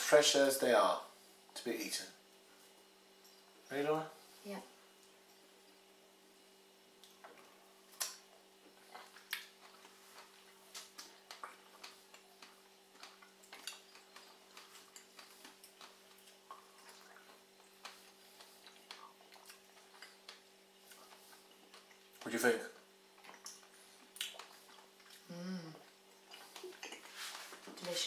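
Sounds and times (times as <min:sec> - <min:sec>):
faint steady hum: 0:00.0 - 0:28.0
people chewing: 0:06.9 - 0:28.0.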